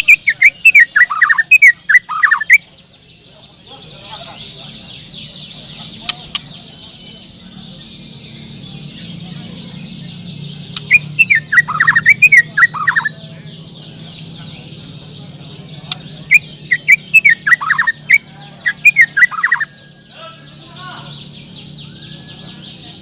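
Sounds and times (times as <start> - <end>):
birds chirping: 0.0 - 23.0
bird singing whistled runs: 8.2 - 13.2, 15.8 - 23.0.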